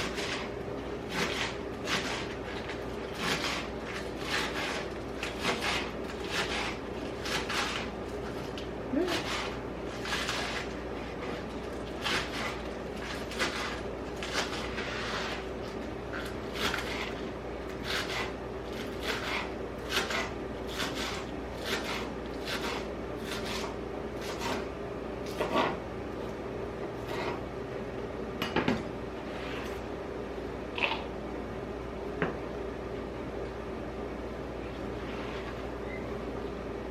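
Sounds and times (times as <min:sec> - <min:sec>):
knife chopping on cutting board: 0:17.8 - 0:24.6, 0:25.3 - 0:25.8.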